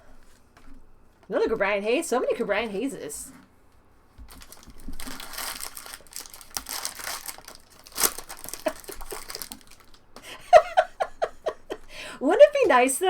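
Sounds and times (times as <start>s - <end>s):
card pack wrappers tearing and crinkling: 4.3s - 10.0s.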